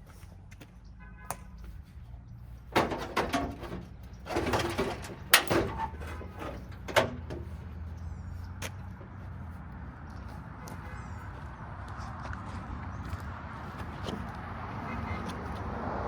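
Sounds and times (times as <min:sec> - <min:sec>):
metal clanks: 0:02.7 - 0:07.7
metal rattling: 0:02.7 - 0:07.7
metal scraping: 0:02.7 - 0:07.7.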